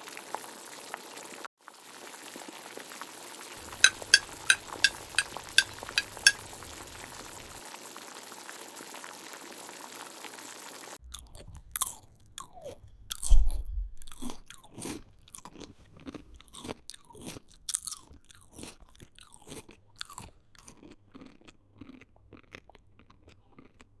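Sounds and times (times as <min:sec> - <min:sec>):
food sizzling in a pan: 0:00.0 - 0:11.0
crunching and chewing: 0:03.6 - 0:07.5, 0:11.0 - 0:24.0.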